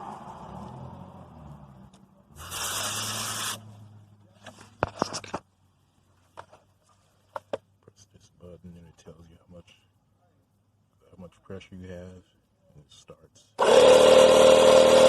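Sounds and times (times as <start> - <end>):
air hissing from tire valve: 2.4 - 3.6.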